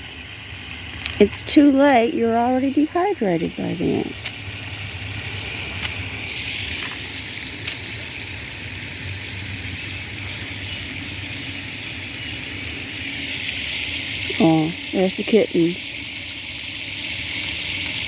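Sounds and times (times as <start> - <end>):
outdoor background hiss: 0.0 - 18.0
faint ticks: 5.8 - 6.0.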